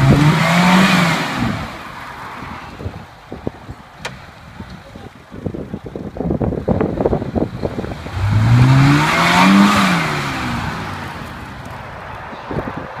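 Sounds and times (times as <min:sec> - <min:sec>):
engine revving hard: 0:00.0 - 0:01.8, 0:07.8 - 0:11.5.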